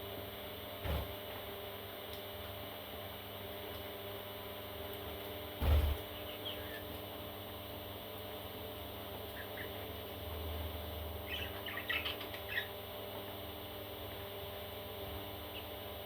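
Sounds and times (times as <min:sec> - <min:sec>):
electrical hum: 0:00.0 - 0:16.0
parrot chicks peeping: 0:05.7 - 0:07.1, 0:09.1 - 0:14.3, 0:15.4 - 0:15.8.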